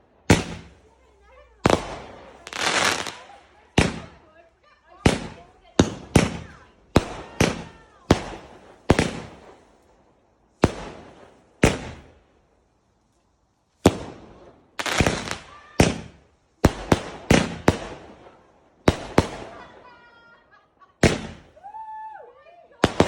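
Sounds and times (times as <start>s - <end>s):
fireworks bangs with echo: 0.2s - 9.8s, 10.5s - 12.2s, 13.8s - 20.2s, 21.0s - 21.6s, 22.8s - 23.0s.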